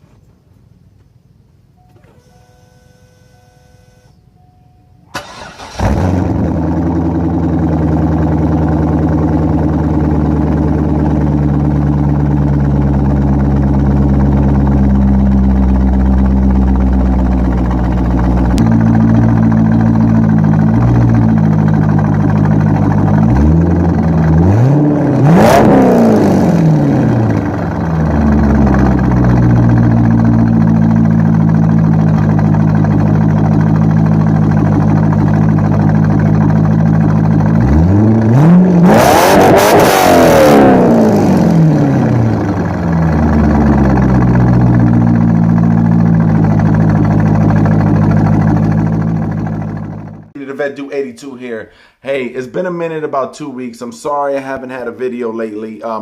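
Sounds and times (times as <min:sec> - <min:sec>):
engine cranking: 0:05.2 - 0:06.4
vee eight engine idling and revving: 0:05.2 - 0:50.4.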